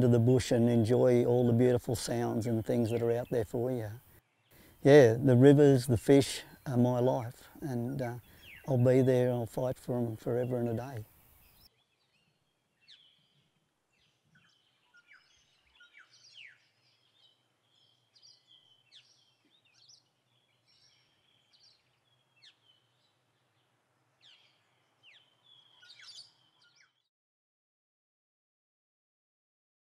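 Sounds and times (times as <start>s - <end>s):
birds chirping and whistling: 6.4s - 13.5s, 14.4s - 21.8s, 24.2s - 27.0s.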